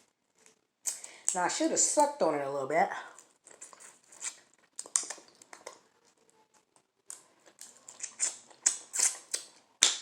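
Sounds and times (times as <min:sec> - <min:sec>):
wet sticky eating smacks: 0:03.5 - 0:05.8, 0:07.1 - 0:10.0.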